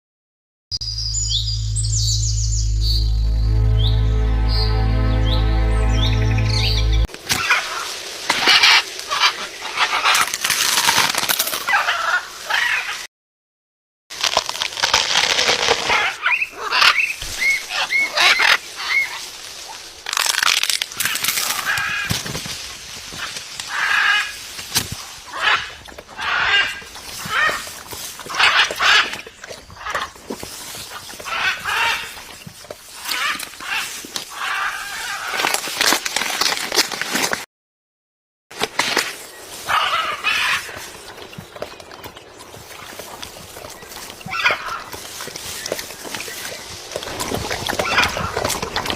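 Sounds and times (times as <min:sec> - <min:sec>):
parrot squawking: 0:16.2 - 0:19.1.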